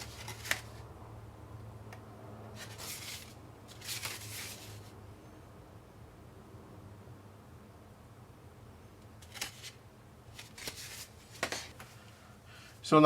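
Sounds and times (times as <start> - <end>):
paper booklet flipping: 0.0 - 0.8, 2.6 - 4.9, 9.2 - 12.0
paper swishes: 2.6 - 4.9.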